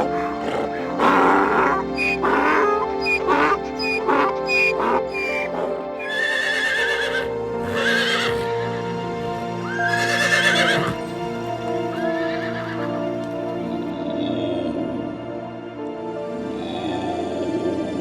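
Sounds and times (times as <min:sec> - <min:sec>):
horse whinnying: 0:00.0 - 0:08.5, 0:09.6 - 0:11.1
background music: 0:00.0 - 0:18.0.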